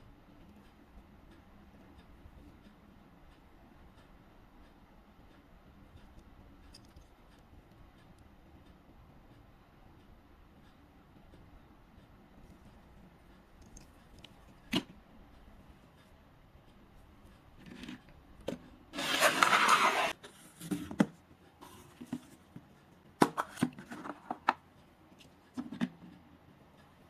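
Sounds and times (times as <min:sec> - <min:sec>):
scraping rasping rustle: 0:19.0 - 0:20.2.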